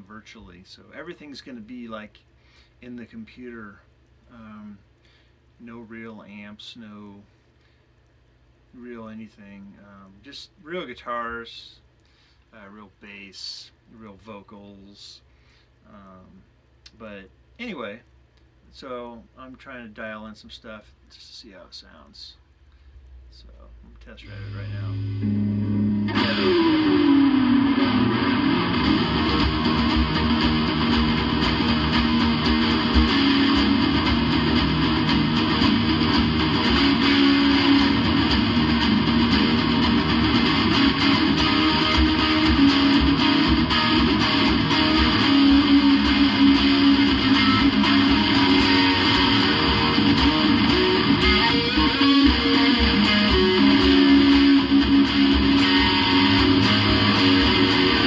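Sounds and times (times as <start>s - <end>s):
electric guitar strumming and picking: 24.3s - 58.0s.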